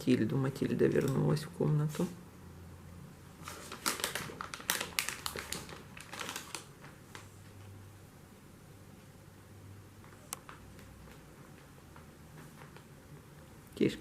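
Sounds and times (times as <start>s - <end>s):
cat crunching dry treats: 3.8s - 6.7s.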